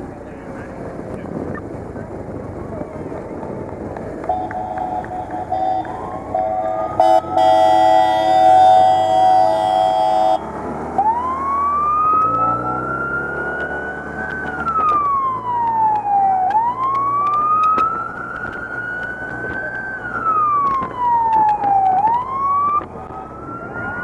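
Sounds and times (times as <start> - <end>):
motorcycle siren horn tone: 4.3 - 10.5
siren wailing: 4.3 - 24.0.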